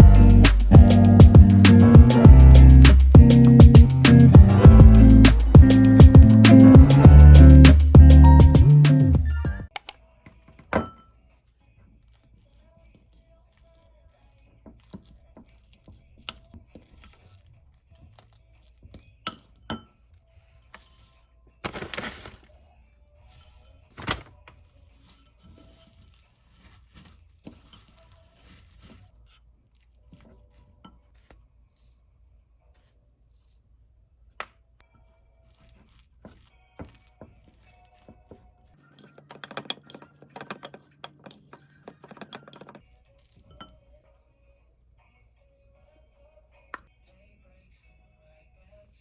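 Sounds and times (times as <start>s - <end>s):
faint background music: 0.0s - 40.0s, 41.7s - 49.0s
small objects clicking and clinking: 38.8s - 42.9s.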